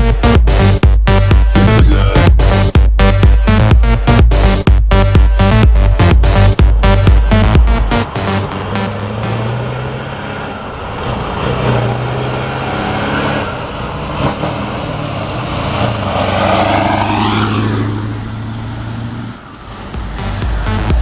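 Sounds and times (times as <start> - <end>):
dance music: 0.0 - 9.9, 19.6 - 21.0
truck engine running: 0.0 - 21.0.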